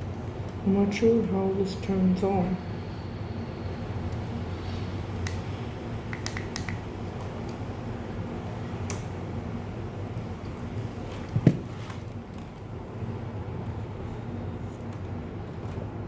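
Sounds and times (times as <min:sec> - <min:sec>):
steady low hum: 0:00.0 - 0:16.0
sharp little clicks and taps: 0:06.1 - 0:07.6
dull knock: 0:11.4 - 0:11.7.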